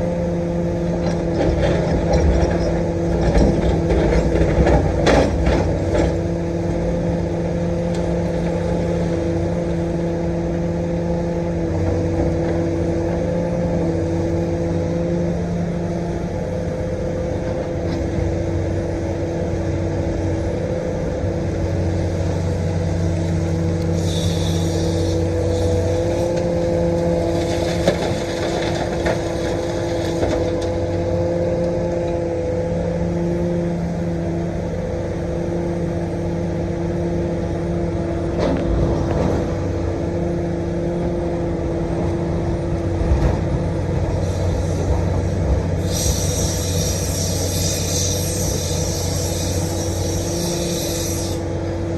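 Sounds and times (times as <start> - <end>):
excavator diesel engine running: 0.0 - 51.9
short burst of hiss: 24.0 - 26.3, 45.8 - 51.4.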